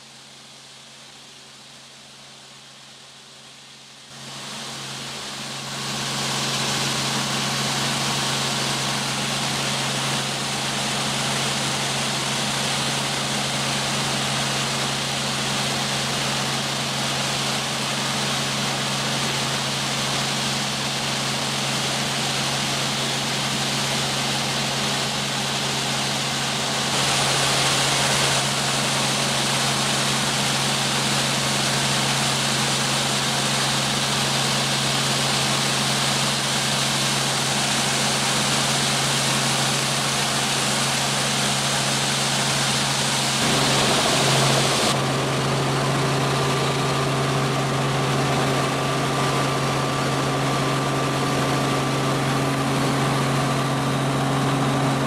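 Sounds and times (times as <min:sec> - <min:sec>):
helicopter engine and rotor hum: 0:04.2 - 0:55.0
rushing hiss: 0:24.2 - 0:49.5.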